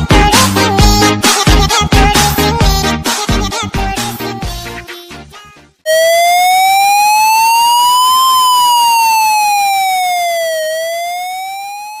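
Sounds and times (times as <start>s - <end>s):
electronic siren wail: 5.9s - 12.0s.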